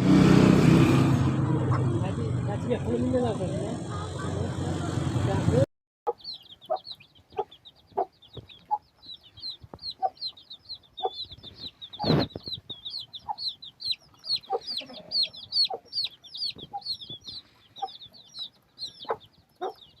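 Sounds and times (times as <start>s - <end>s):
chickens clucking: 1.4s - 2.2s, 3.2s - 5.2s, 6.1s - 20.0s
high-pitched chick peeping: 6.1s - 20.0s.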